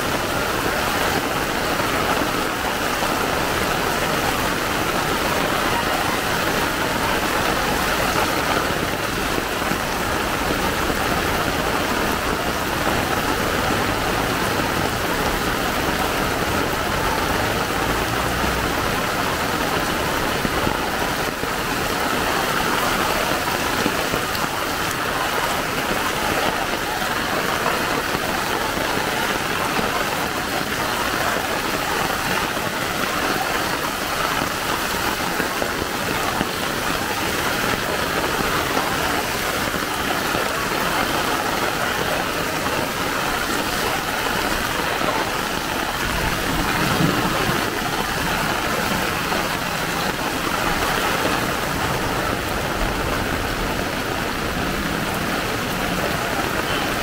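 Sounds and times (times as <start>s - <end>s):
heavy rain pouring on street: 0.0s - 57.0s.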